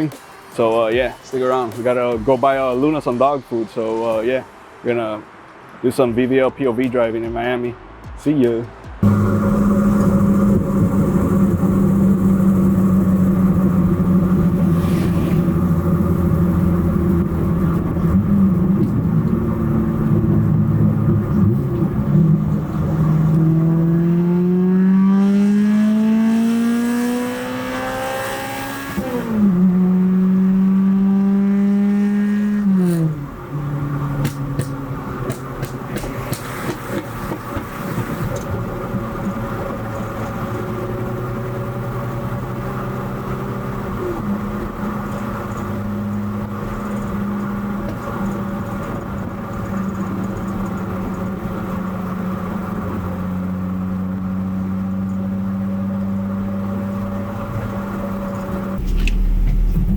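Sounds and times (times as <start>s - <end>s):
exhaust pops and crackles: 8.5s - 23.7s, 32.8s - 41.8s, 43.9s - 55.3s, 58.3s - 59.9s
car engine revving: 9.0s - 59.9s.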